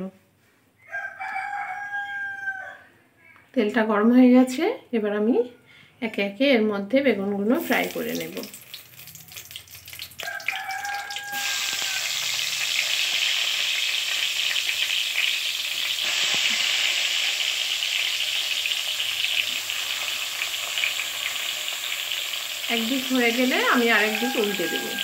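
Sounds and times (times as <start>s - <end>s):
eggplants sizzling in hot oil: 7.4s - 25.0s.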